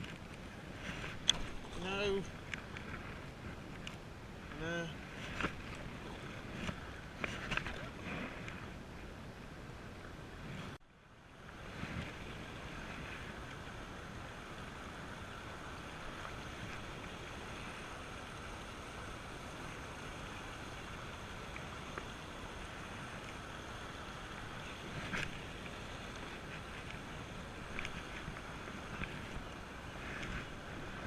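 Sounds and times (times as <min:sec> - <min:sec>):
river water rushing: 0:00.0 - 0:31.0
wind on microphone: 0:11.5 - 0:31.0.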